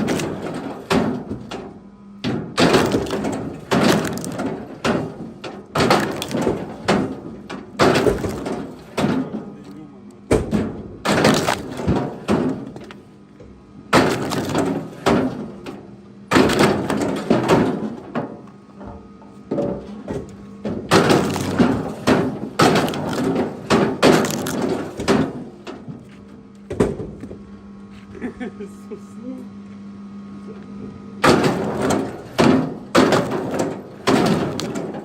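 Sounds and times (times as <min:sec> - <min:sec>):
firewood knocking and clattering: 0:00.0 - 0:09.5, 0:10.3 - 0:13.0, 0:13.9 - 0:18.4, 0:19.5 - 0:26.0, 0:31.2 - 0:35.0.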